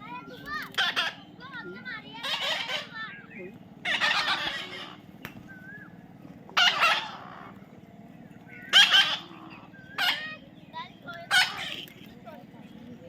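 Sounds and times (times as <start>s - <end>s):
parrot squawking: 0.1s - 5.0s, 6.6s - 7.6s, 8.6s - 12.2s
faint whistled chirps: 5.4s - 6.0s.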